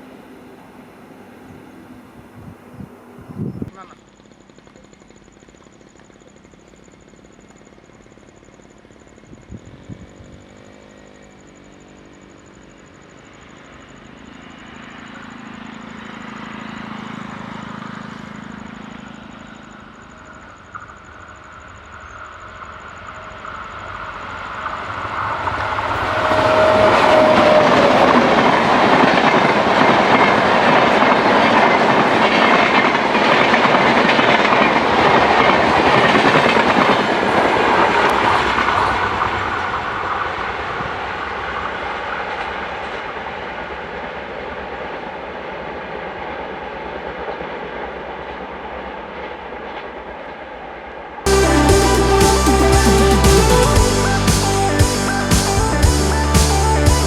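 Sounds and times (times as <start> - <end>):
train passing rumble: 0.0 - 57.0
train horn: 25.2 - 29.3.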